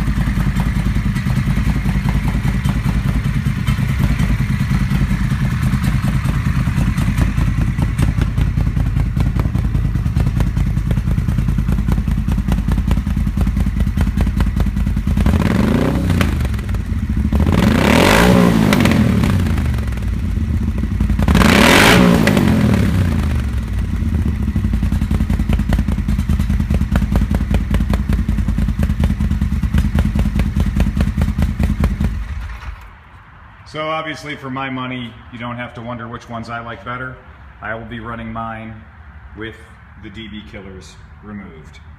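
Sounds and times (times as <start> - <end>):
motorcycle engine idling and revving: 0.0 - 33.2.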